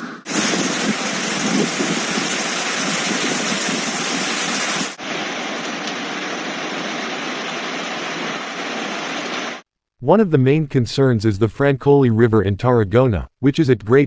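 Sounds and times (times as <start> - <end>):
floodwater rushing: 0.3 - 9.6.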